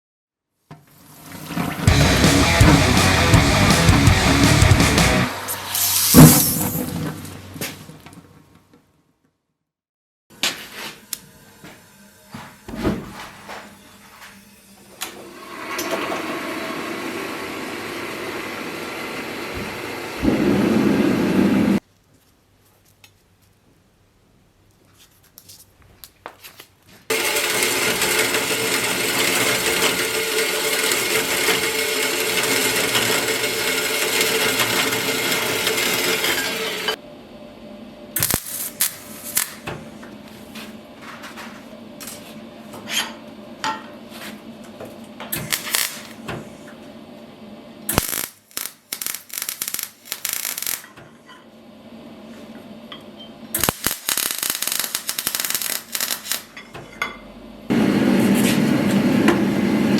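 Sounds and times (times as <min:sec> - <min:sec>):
steady machine noise: 0:01.8 - 0:05.8.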